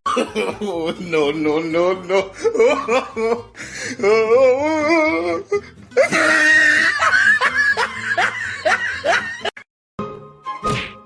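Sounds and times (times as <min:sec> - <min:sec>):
person laughing hard: 0:00.1 - 0:01.2, 0:02.0 - 0:09.6.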